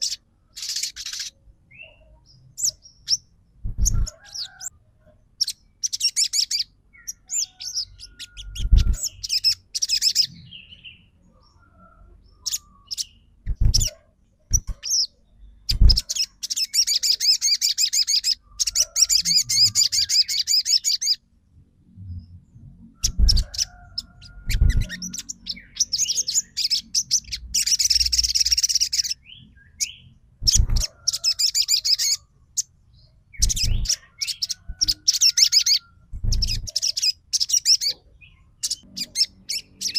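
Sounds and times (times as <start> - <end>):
sunbird chirps and trills: 0.0 - 4.7, 5.4 - 21.3, 22.0 - 39.9
dull low thumps: 3.6 - 4.1.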